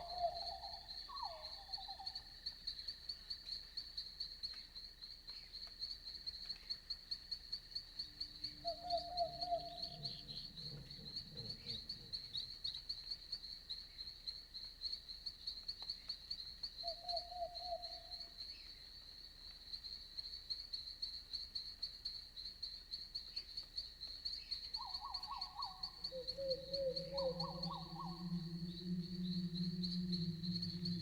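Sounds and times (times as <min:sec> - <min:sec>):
crickets chirping: 0:00.0 - 0:31.0
animal trilling call: 0:25.6 - 0:31.0
soft low rumble: 0:26.2 - 0:31.0.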